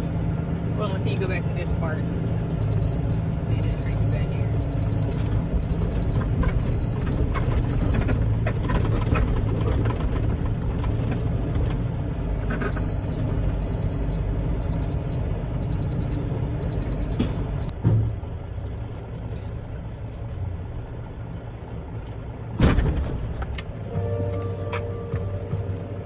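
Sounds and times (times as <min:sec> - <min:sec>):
diesel engine running: 0:00.0 - 0:26.0
truck back-up alarm beeping: 0:02.5 - 0:08.3, 0:12.6 - 0:17.8.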